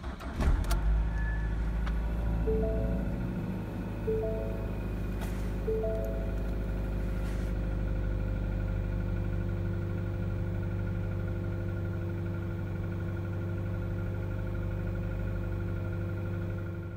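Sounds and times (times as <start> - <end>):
car engine idling: 0.8 - 16.9.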